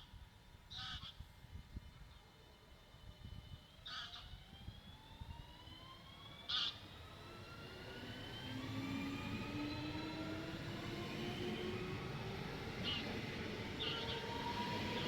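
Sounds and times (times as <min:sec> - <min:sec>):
electric train motor whine: 0:05.4 - 0:15.0.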